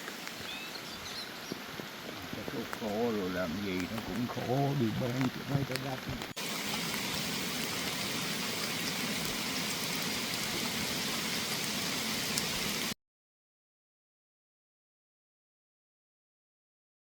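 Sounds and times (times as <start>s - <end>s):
steady rain pouring: 0.0s - 13.0s.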